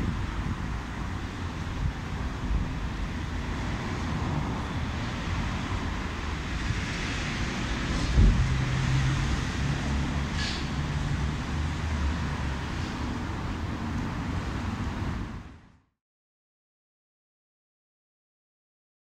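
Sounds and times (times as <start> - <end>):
low engine hum: 0.0 - 15.7
city traffic rumble: 0.0 - 15.9
dull low thump: 8.1 - 8.5.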